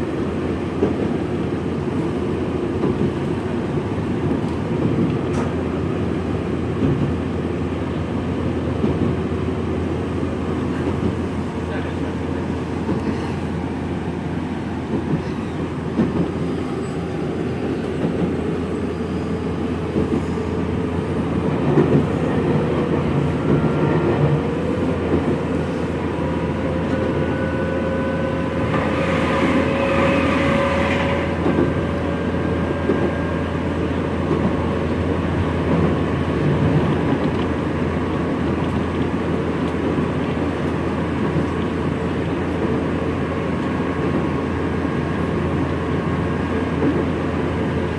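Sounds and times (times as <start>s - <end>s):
train car rumble: 0.0s - 47.9s.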